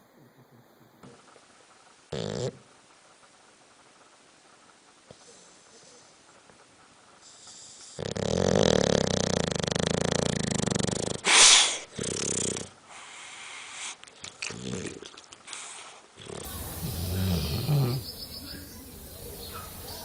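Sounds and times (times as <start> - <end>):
dog snoring: 2.1 - 2.7, 7.2 - 11.3, 11.9 - 12.7, 16.2 - 18.7
sharp hissing breath: 7.2 - 8.0, 11.2 - 11.9, 12.9 - 14.0, 15.5 - 18.8.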